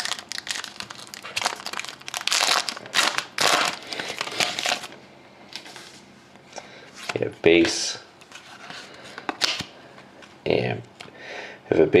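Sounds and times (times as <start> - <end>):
plastic wrapper tearing and crinkling: 0.0 - 5.0.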